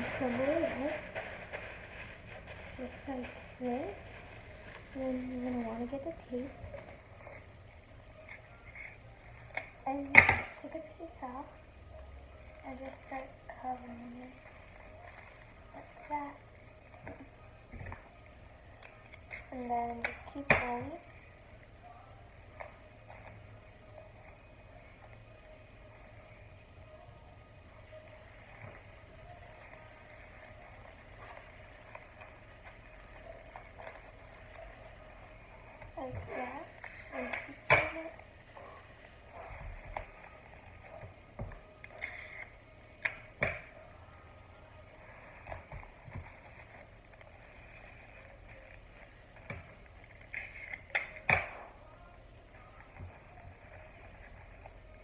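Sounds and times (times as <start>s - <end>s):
plastic bag crinkling: 0.0s - 7.2s
low steady hum: 0.0s - 55.0s.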